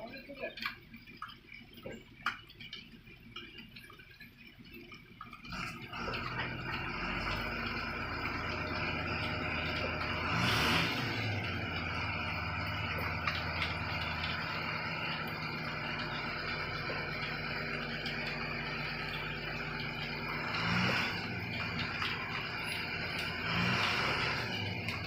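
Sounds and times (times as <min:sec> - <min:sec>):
truck engine running: 0:05.2 - 0:25.0.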